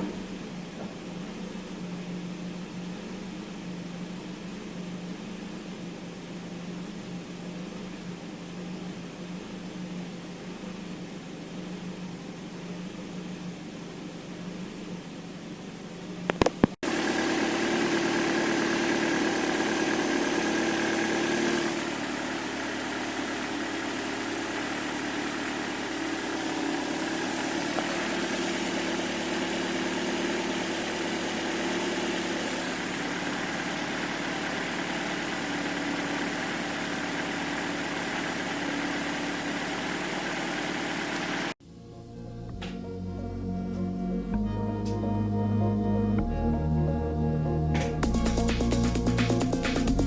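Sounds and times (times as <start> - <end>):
car engine idling: 0.0 - 13.4, 16.2 - 43.2, 47.8 - 50.0
higher steady tone: 41.7 - 50.0.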